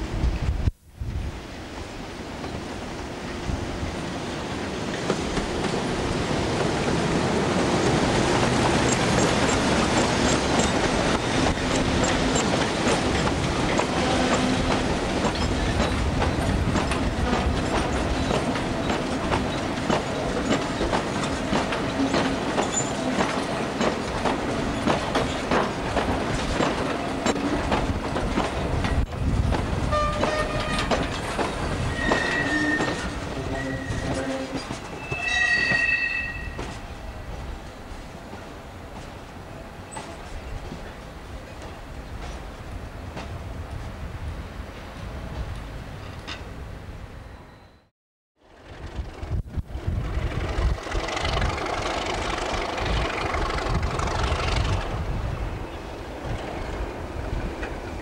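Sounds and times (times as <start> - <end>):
train wheels clattering: 4.8 - 35.9
high squealing tones: 31.8 - 36.8.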